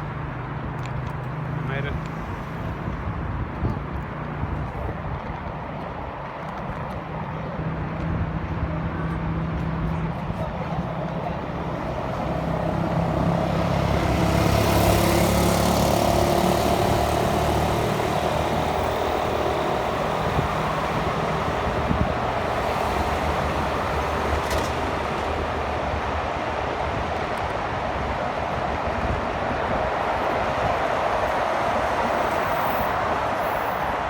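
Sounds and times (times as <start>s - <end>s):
rush of traffic and road noise: 0.0s - 34.0s
motor vehicle passing close: 11.4s - 26.6s.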